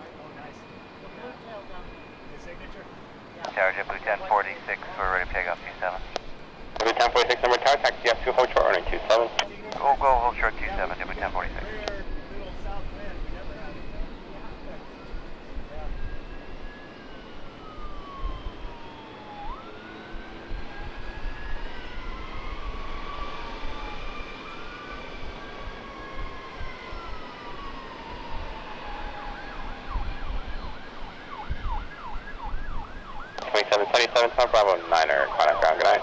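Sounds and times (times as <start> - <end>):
emergency siren wailing: 0.0 - 36.0
siren fast yelp: 13.6 - 36.0.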